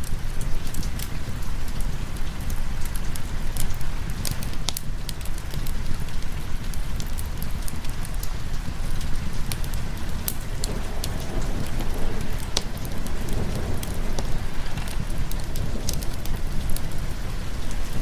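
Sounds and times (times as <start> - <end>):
rain hissing: 0.2 - 18.0
wood fire crackling: 0.4 - 18.0
deep low rumble: 9.2 - 18.0.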